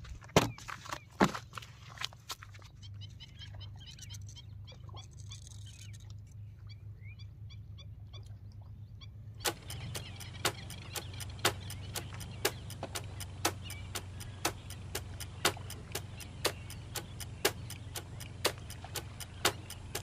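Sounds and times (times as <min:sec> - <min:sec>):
small birds chirping: 0:02.5 - 0:20.0
low hum: 0:05.7 - 0:20.0
clock-like ticking: 0:09.4 - 0:20.0.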